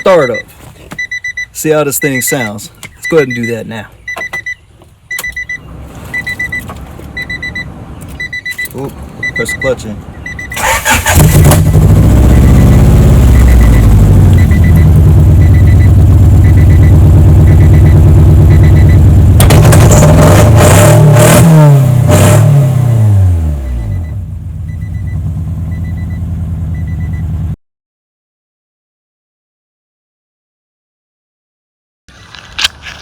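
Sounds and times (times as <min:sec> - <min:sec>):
faint beep: 0:00.0 - 0:10.6, 0:12.2 - 0:19.0, 0:23.7 - 0:27.3
car engine starter cranking: 0:05.1 - 0:15.5
car engine revving: 0:10.0 - 0:26.8
loud car engine running: 0:10.0 - 0:27.6.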